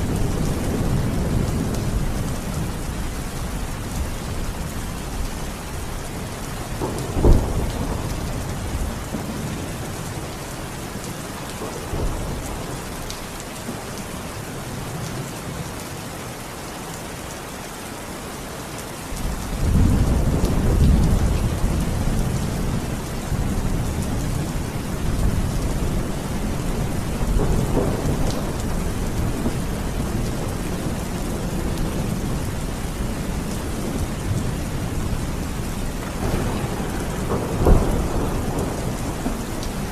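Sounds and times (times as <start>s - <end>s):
heavy rain: 0.0s - 39.9s
thunder crack and rumble: 6.2s - 10.4s, 19.2s - 39.9s.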